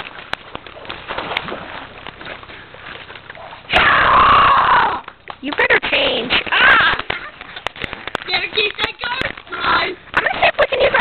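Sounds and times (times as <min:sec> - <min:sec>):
rustling: 0:00.0 - 0:03.7
boy yelling: 0:08.9 - 0:10.0.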